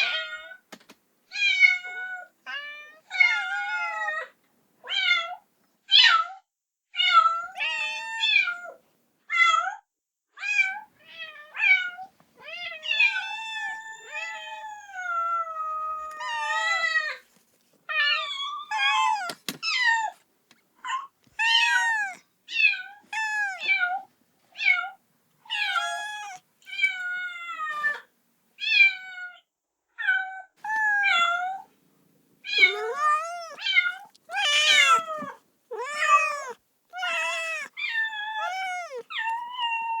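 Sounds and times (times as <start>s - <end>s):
kitten meowing: 12.5s - 17.2s, 18.0s - 20.2s, 21.0s - 24.0s, 25.5s - 28.0s, 30.6s - 31.7s, 32.5s - 40.0s.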